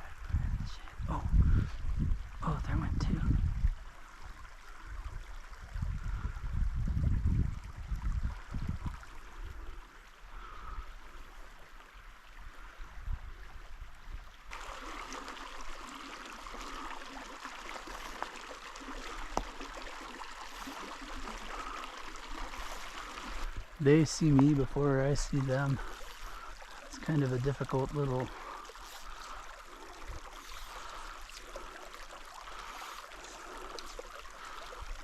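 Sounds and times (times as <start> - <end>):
low gusty rumbling: 0.0 - 3.8
creek water running over rocks: 0.0 - 35.0.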